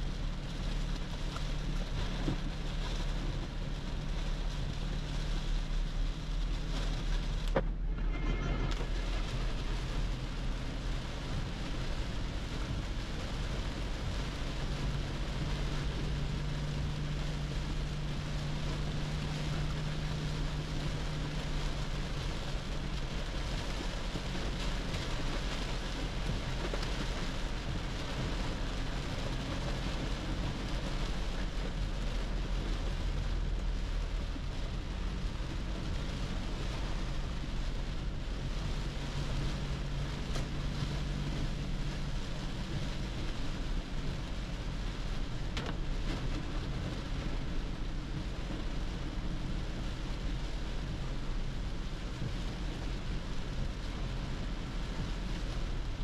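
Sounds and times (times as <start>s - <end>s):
low engine and road hum: 0.0s - 56.0s
rain on car roof: 0.0s - 56.0s.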